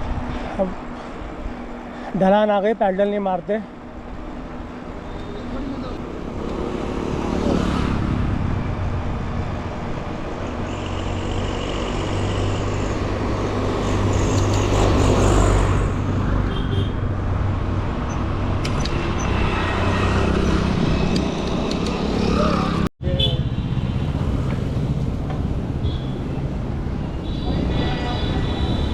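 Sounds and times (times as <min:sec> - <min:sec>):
road traffic: 0:00.0 - 0:28.9
vehicle passing by: 0:04.2 - 0:09.8, 0:18.9 - 0:22.9.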